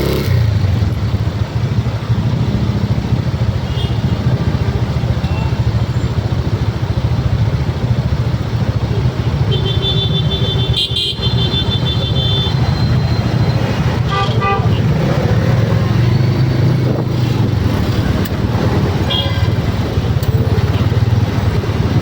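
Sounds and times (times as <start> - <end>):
road traffic rumble: 0.0 - 22.0
vehicle horn: 3.6 - 4.2, 9.3 - 12.7, 14.0 - 15.1, 19.0 - 19.6.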